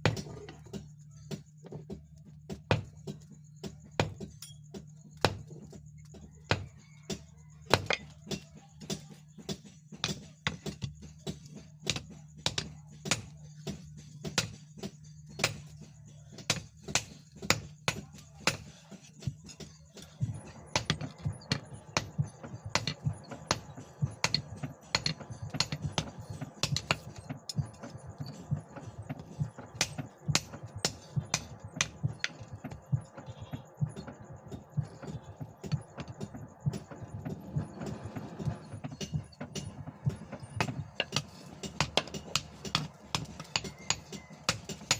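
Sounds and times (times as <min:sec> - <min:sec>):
hammer striking steel: 0:07.7 - 0:37.1, 0:38.4 - 0:44.9.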